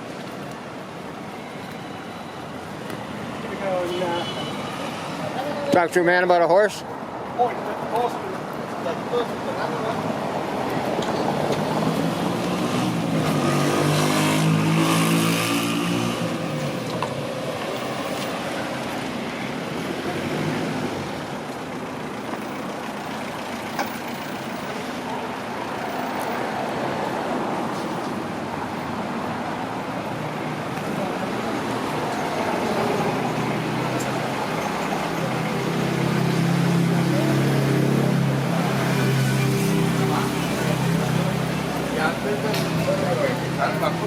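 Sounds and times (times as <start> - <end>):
street traffic noise: 0.0 - 44.0
vehicle engine passing: 11.2 - 16.9.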